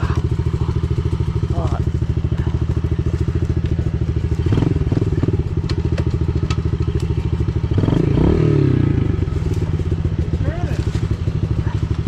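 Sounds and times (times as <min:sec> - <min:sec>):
motorbike engine revving: 0:00.0 - 0:12.0
sharp clicks and knocks: 0:05.5 - 0:08.0.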